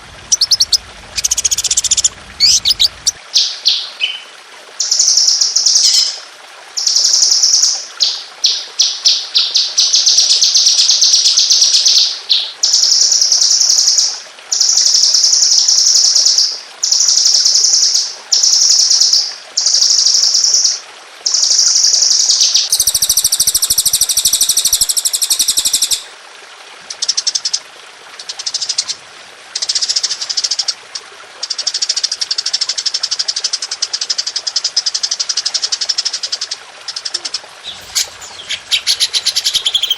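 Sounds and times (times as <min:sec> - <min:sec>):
songbird trilling: 0:00.3 - 0:04.3, 0:37.2 - 0:39.9.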